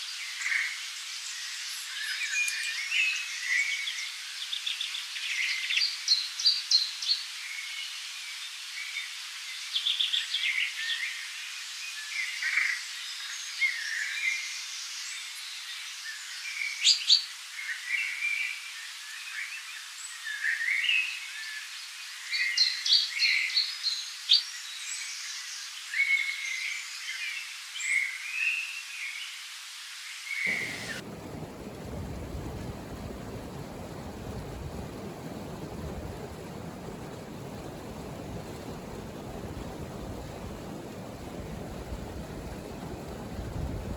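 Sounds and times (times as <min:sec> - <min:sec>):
faint steady hiss: 0:26.7 - 0:43.9.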